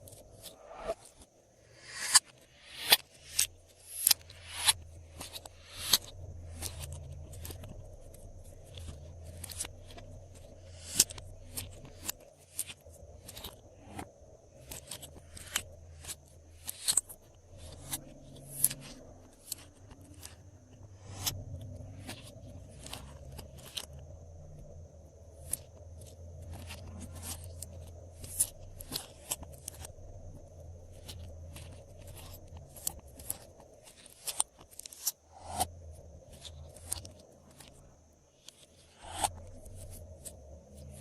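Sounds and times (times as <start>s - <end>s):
low steady hum: 3.5s - 41.0s.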